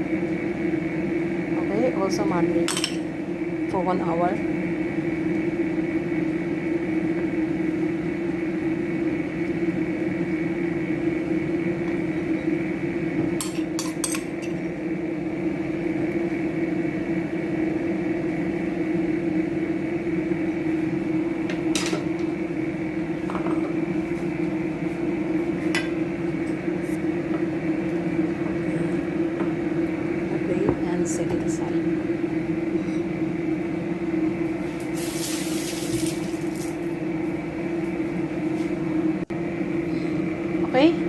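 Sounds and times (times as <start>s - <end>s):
steady hum: 0.0s - 41.0s
dishes and utensils clinking: 2.7s - 3.0s.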